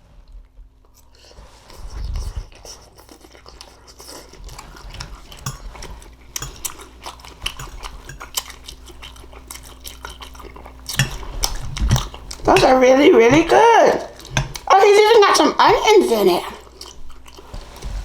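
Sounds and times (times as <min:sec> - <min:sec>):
chewing mouth noises: 0:00.8 - 0:15.4, 0:16.0 - 0:17.8
fork scraping a dish: 0:01.0 - 0:14.7, 0:17.2 - 0:18.0.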